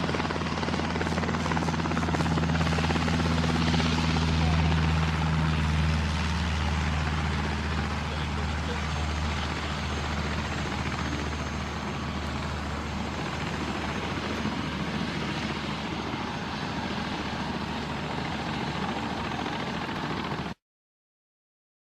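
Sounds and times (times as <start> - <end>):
light aircraft engine droning: 0.0 - 20.6.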